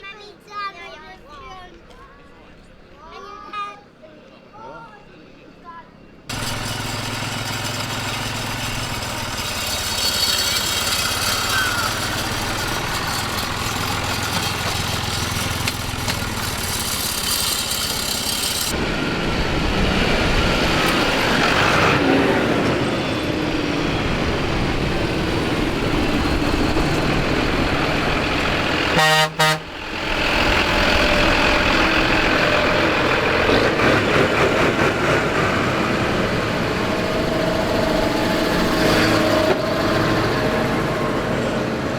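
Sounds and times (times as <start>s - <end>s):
tractor engines running: 6.3s - 41.9s
horn blast: 28.9s - 29.8s.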